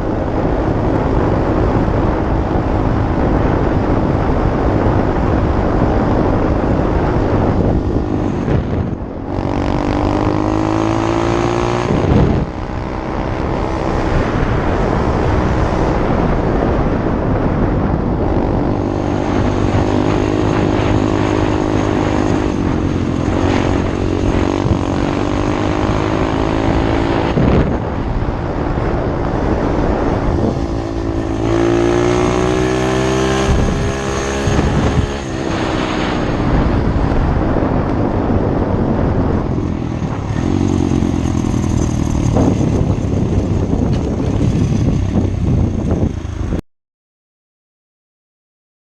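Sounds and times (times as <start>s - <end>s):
small motorbike engine revving: 6.2s - 16.3s, 18.4s - 27.9s, 29.4s - 37.0s.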